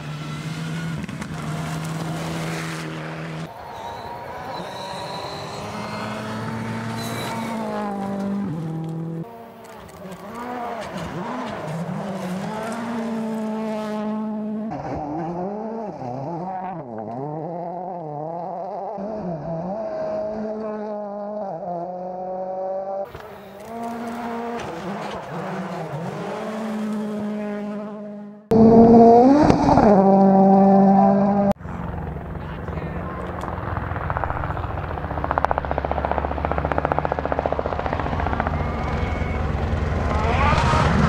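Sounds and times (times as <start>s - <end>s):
rally car engines revving: 0.0s - 32.3s, 35.0s - 41.0s.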